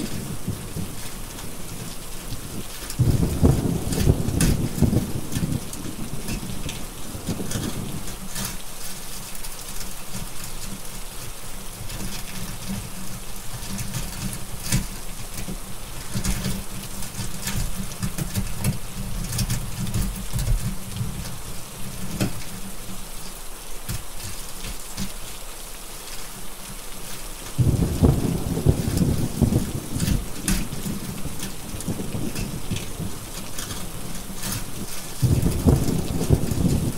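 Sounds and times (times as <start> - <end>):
thunder rumble: 0.0 - 8.4, 27.5 - 36.9
rain hiss: 0.0 - 36.9
wood fire crackling: 0.0 - 36.9.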